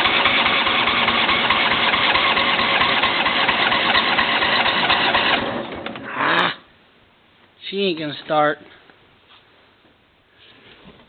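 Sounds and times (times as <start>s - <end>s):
electric starter cranking engine: 0.0s - 6.1s.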